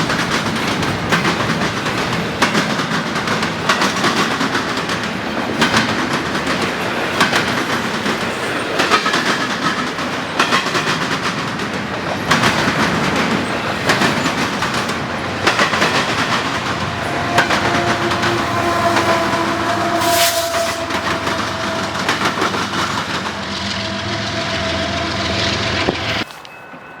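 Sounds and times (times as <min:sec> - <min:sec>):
train wheels clacking over rail joints: 0:00.0 - 0:26.4
train rumble: 0:00.0 - 0:26.9
steady tone: 0:15.2 - 0:26.2.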